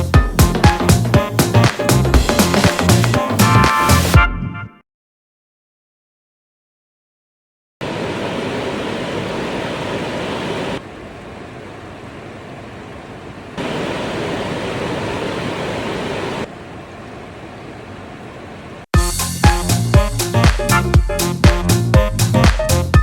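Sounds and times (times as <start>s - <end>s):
heavy rain on metal roof: 7.8s - 18.8s.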